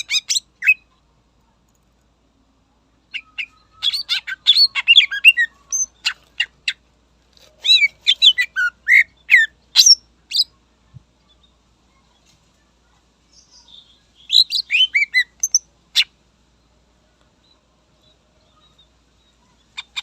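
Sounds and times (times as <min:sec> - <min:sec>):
bird singing whistles and chirps: 0:03.1 - 0:06.2, 0:07.6 - 0:10.5, 0:13.4 - 0:16.1.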